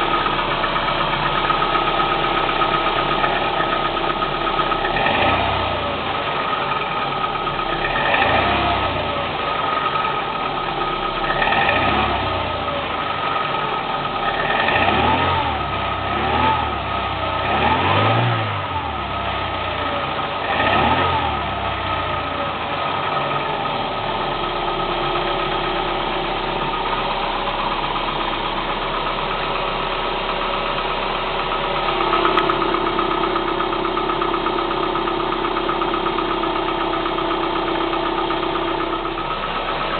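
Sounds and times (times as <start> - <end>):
car engine revving: 0.0 - 30.5
car engine idling: 0.0 - 39.9.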